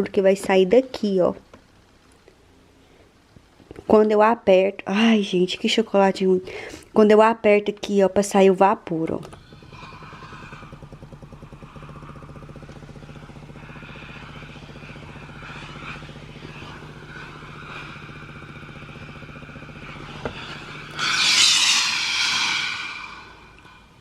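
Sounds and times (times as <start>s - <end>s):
steam iron unit buzzing hum: 0.0s - 24.0s
steam hissing: 9.2s - 24.0s.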